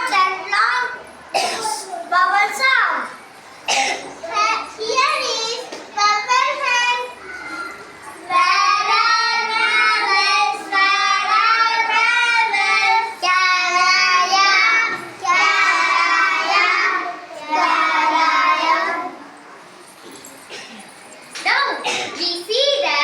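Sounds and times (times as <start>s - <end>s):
young children singing: 6.1s - 19.4s.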